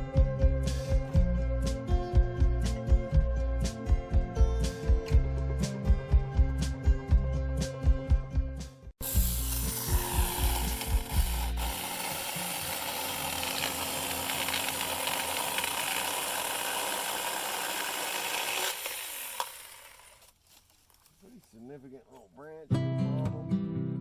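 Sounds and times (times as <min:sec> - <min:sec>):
background music: 0:00.0 - 0:13.5, 0:22.7 - 0:24.0
electric chainsaw cutting branch: 0:09.0 - 0:20.4.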